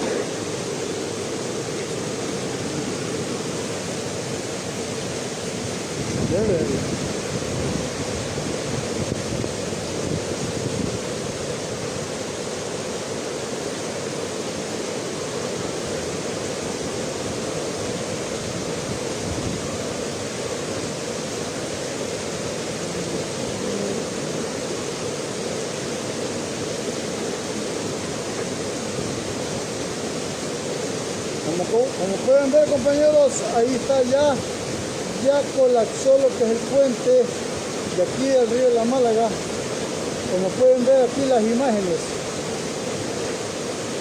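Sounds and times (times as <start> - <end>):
rushing roar of flooded river: 0.0 - 44.0.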